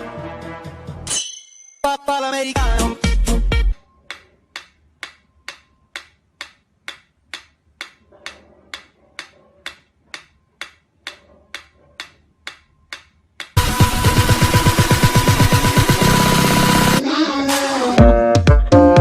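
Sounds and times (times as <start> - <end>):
steady ticking: 4.0 - 17.0.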